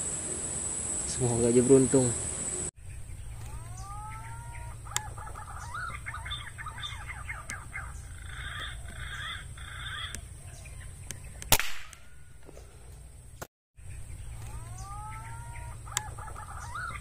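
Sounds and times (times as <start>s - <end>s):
birds chattering: 1.1s - 11.5s, 13.8s - 17.0s
sharp crack: 11.1s - 12.2s.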